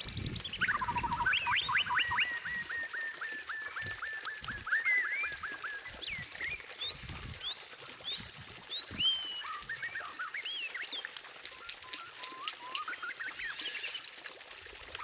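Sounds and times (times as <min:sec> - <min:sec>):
songbird singing whistled notes: 0:00.0 - 0:14.4.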